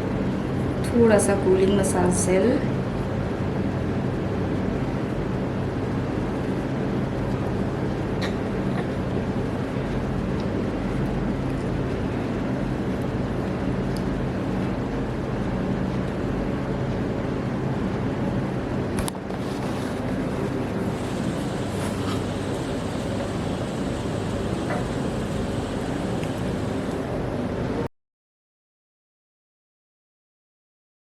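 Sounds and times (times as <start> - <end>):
low machine hum: 0.0 - 27.9
rush of air noise: 19.4 - 27.8.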